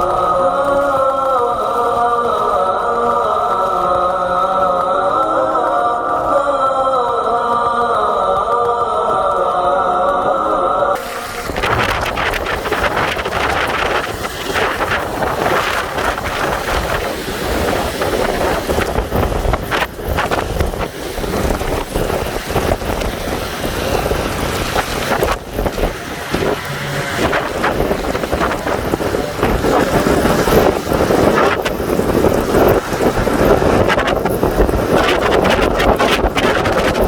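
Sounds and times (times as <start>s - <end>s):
heavy rain downpour: 0.0s - 37.0s
wind buffeting microphone: 11.0s - 37.0s.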